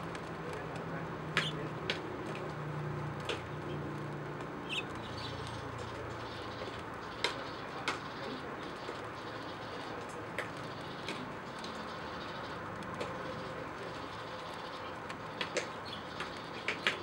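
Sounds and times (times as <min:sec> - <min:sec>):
small bird chip calls: 0:01.3 - 0:01.7, 0:04.6 - 0:09.9.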